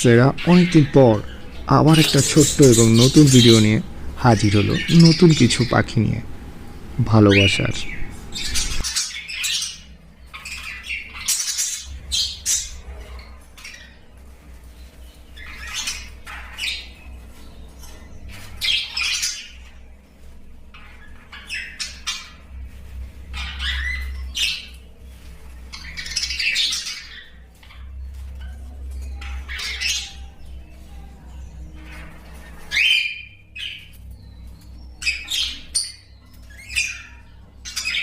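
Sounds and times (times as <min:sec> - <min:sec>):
birds squawking and chirping: 0:00.0 - 0:38.0
low steady hum: 0:00.0 - 0:38.0.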